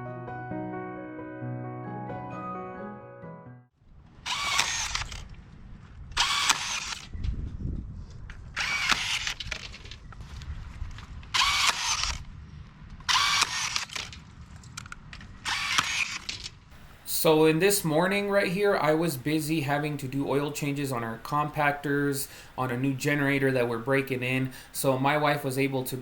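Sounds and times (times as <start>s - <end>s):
power tool running in bursts: 4.2s - 5.2s, 6.2s - 7.1s, 8.6s - 9.4s, 11.4s - 12.2s, 13.1s - 14.0s, 15.5s - 16.3s.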